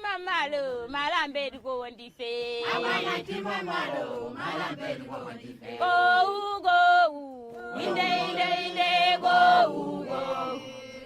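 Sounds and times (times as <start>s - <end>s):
voices chanting sustained notes: 7.8s - 11.0s.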